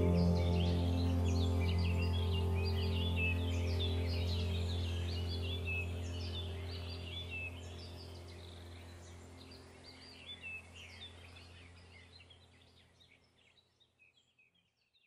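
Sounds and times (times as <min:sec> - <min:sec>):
low steady drone: 0:00.0 - 0:12.5
birdsong chirping: 0:00.0 - 0:15.0.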